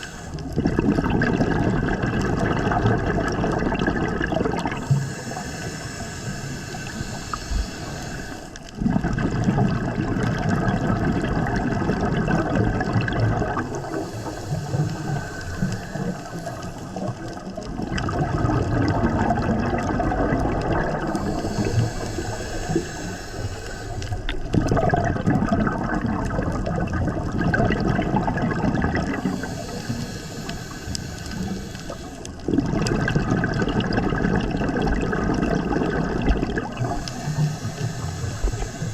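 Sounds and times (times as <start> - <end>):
regulator hiss on inhale: 0.0 - 0.6, 4.6 - 8.8, 13.0 - 17.7, 20.2 - 24.6, 29.0 - 32.5, 36.2 - 38.9
exhaled bubbles rumbling: 0.0 - 38.9.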